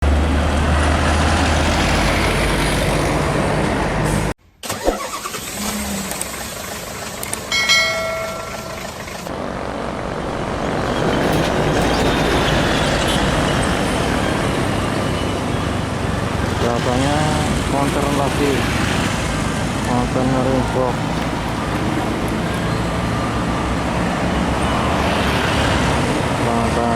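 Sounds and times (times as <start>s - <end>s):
heavy trucks passing: 0.0s - 4.4s, 5.4s - 26.9s
short steady pitched tone: 7.5s - 10.9s.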